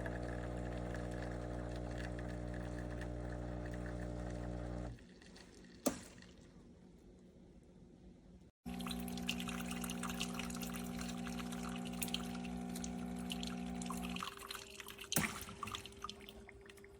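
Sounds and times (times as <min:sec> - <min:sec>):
espresso machine pump humming: 0:00.0 - 0:05.0, 0:08.7 - 0:14.3
liquid pouring into cup: 0:00.0 - 0:06.5, 0:08.7 - 0:16.9
drips: 0:08.6 - 0:16.9.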